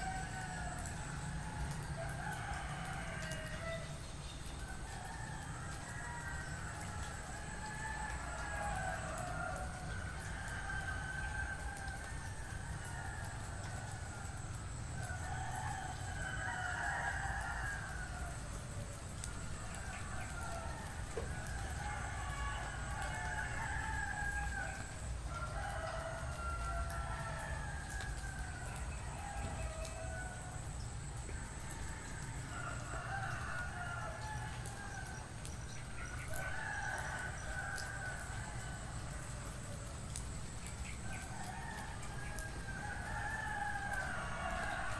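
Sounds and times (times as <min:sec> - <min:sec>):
roosters crowing: 0:15.0 - 0:30.7, 0:31.3 - 0:40.0, 0:40.8 - 0:44.9.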